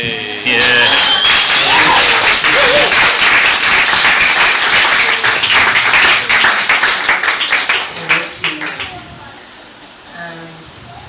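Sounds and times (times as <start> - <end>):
audience applause: 0.5 - 9.0.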